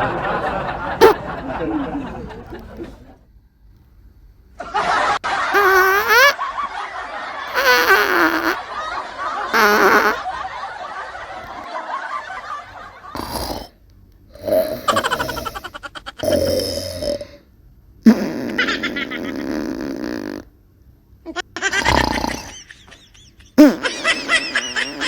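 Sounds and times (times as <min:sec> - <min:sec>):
person laughing loudly: 0:00.0 - 0:02.6, 0:04.6 - 0:10.7, 0:14.8 - 0:16.4, 0:21.3 - 0:25.0.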